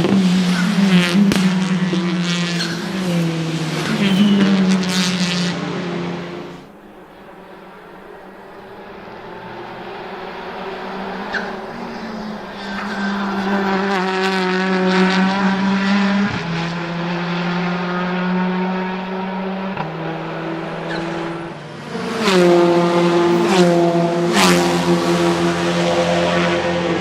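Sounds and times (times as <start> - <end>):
exhaust cracks: 0.0 - 16.8
car engine running hard: 0.0 - 27.0.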